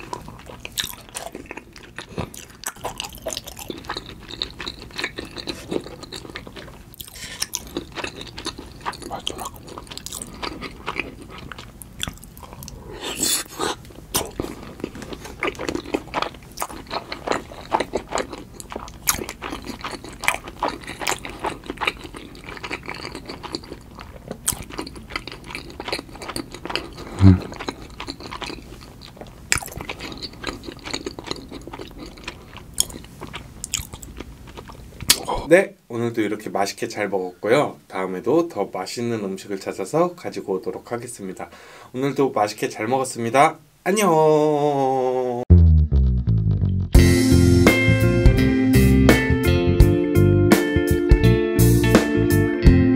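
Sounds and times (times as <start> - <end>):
chewing mouth clicks: 0.0 - 35.3
brief low-pitched sound: 45.5 - 47.1.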